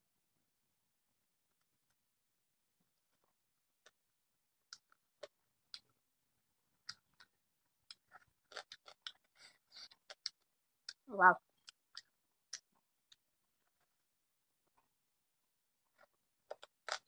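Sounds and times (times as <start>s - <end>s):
person chewing with lip smacks: 4.7s - 6.0s, 6.7s - 11.0s, 11.6s - 14.0s, 15.9s - 17.0s.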